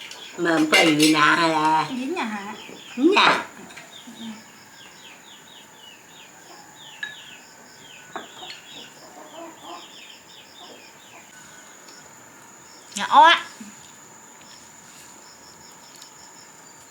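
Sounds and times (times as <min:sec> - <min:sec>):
chickens clucking: 0:00.0 - 0:12.6
insect drone: 0:00.0 - 0:16.9
chicks peeping: 0:01.8 - 0:14.7.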